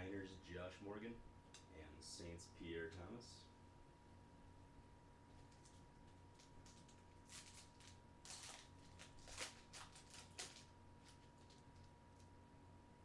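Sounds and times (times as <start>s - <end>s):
steady low electrical hum: 0.0s - 13.0s
trading cards rustling: 5.3s - 11.9s.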